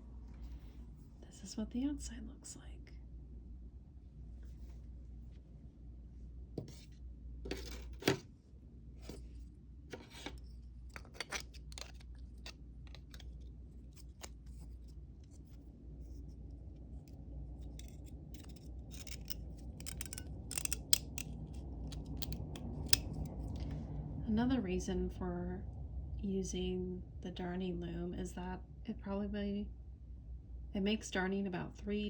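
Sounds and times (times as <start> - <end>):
light clicks snips and scrapes: 17.6 - 23.4.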